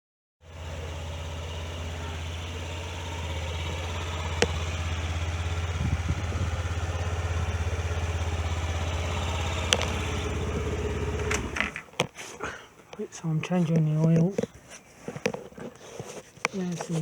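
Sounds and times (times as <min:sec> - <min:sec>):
scooter engine idling: 0:00.4 - 0:11.9
sharp clicks: 0:08.7 - 0:10.6.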